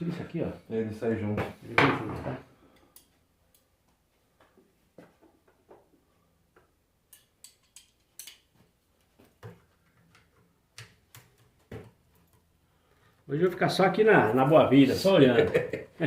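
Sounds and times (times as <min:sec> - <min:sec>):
small metal parts clicking: 0:07.1 - 0:08.5.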